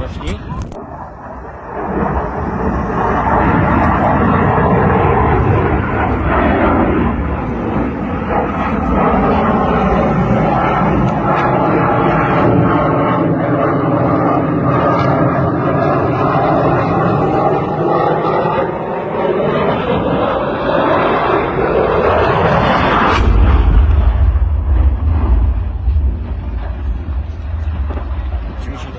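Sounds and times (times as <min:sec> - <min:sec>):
fighter jet in flight: 0:00.0 - 0:28.9.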